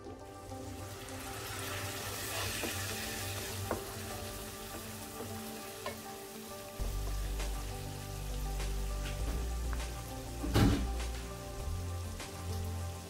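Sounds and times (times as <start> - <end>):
curry paste sizzling in oil: 0.0 - 13.0
wooden spoon stirring: 1.6 - 6.2.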